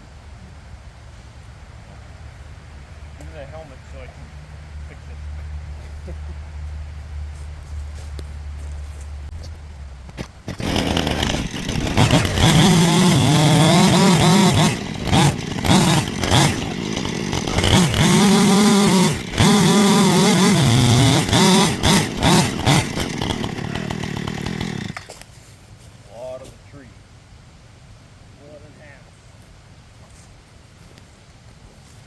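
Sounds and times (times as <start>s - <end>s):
chainsaw cutting wood: 9.4s - 25.2s.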